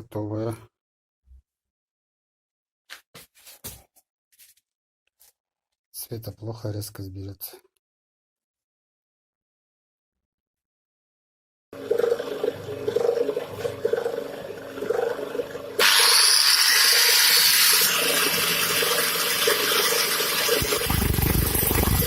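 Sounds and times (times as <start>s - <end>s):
lathe running: 11.8s - 22.0s.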